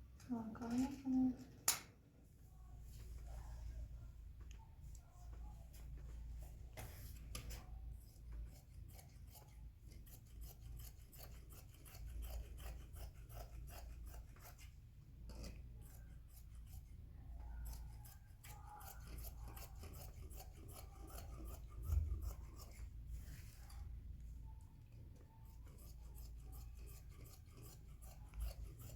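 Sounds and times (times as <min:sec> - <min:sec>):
scissors cutting cloth: 0:06.8 - 0:23.0, 0:25.4 - 0:28.9.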